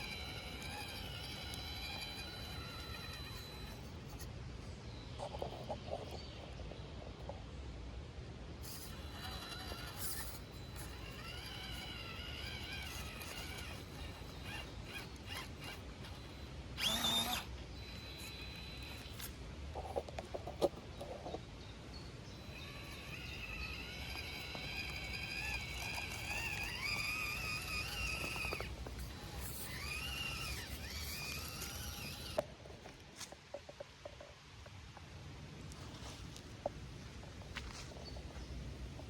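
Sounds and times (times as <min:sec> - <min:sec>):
small electric motor whining: 0:00.0 - 0:04.3, 0:08.5 - 0:21.4, 0:22.0 - 0:32.8.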